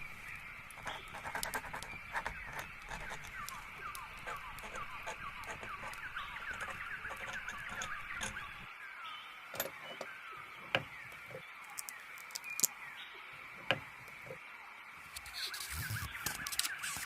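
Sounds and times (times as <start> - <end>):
steady high hiss: 0.0 - 1.2, 8.6 - 17.0
small birds chirping: 0.0 - 17.0
sharp clicks: 0.7 - 8.7.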